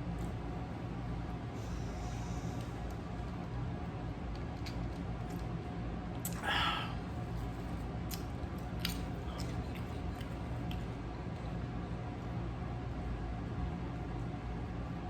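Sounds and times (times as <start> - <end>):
steady low hum: 0.0 - 15.0
close chewing: 8.1 - 11.4.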